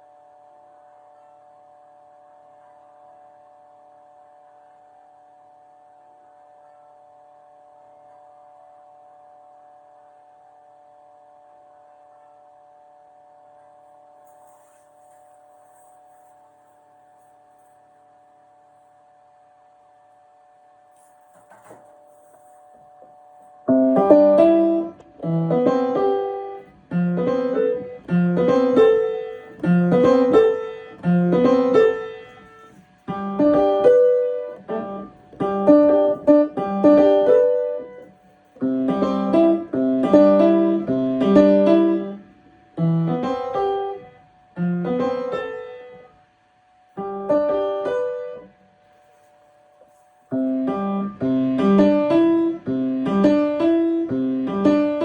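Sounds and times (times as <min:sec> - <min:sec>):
piano chords and runs: 0:00.0 - 0:55.0.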